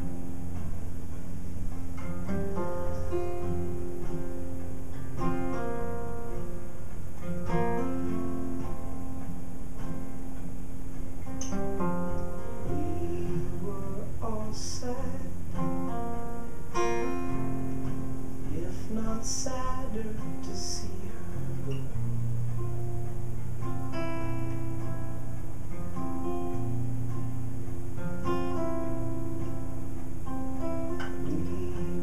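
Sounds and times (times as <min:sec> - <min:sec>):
acoustic guitar band music: 0:00.0 - 0:32.0.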